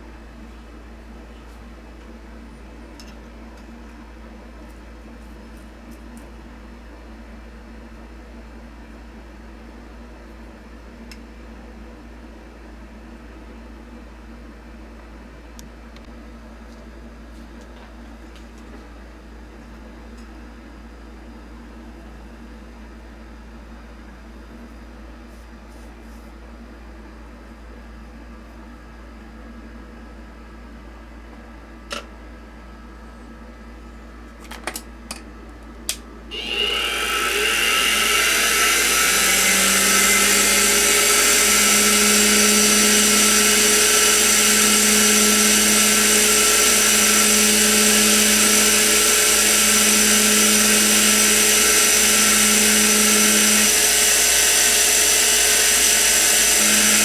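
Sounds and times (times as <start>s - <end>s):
mill motor whining: 36.3s - 57.0s.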